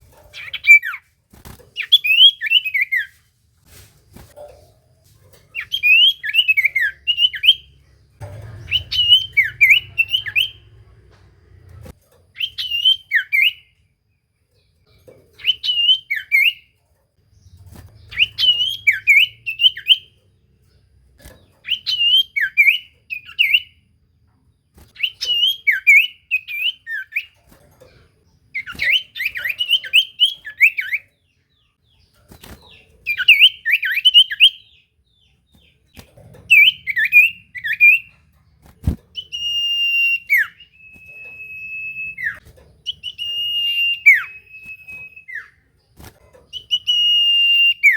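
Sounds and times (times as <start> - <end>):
bird whistling song: 0.4 - 1.0, 1.8 - 3.2, 5.6 - 7.8, 8.6 - 10.7, 12.4 - 13.8, 15.4 - 16.7, 17.4 - 20.2, 21.3 - 23.8, 24.9 - 27.4, 28.5 - 35.7, 36.5 - 38.2, 39.1 - 45.6, 46.5 - 47.9.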